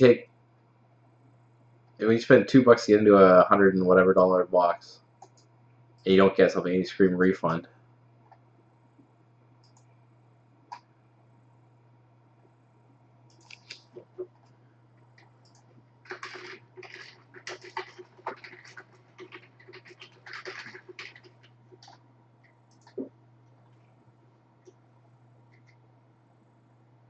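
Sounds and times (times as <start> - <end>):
low electrical hum: 0.0 - 27.0
keyboard typing: 13.3 - 14.5, 15.1 - 23.1, 25.5 - 25.8.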